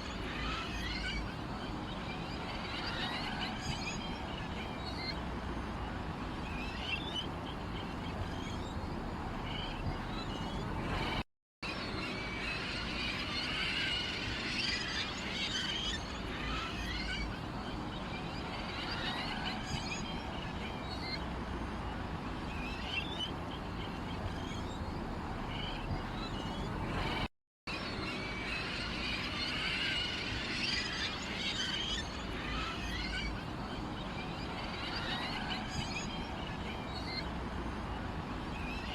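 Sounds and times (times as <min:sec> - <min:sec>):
small birds chirping: 0:00.0 - 0:11.2, 0:22.5 - 0:27.3.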